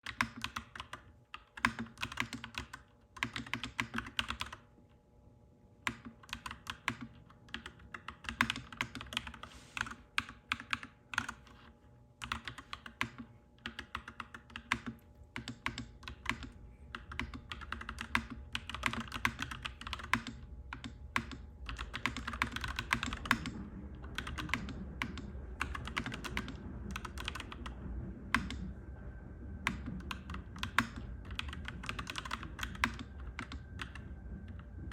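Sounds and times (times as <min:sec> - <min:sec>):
mechanical keyboard typing: 0:00.0 - 0:04.7, 0:05.8 - 0:28.7, 0:29.6 - 0:34.9
low rumble: 0:18.7 - 0:34.9.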